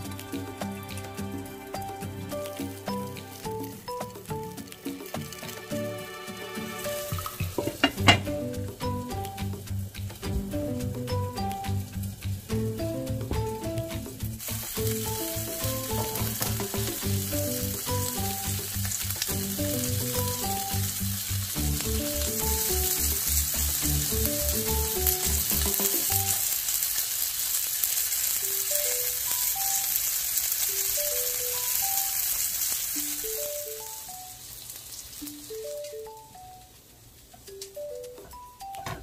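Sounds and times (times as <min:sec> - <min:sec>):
dumplings sizzling in oil: 0:00.0 - 0:38.8.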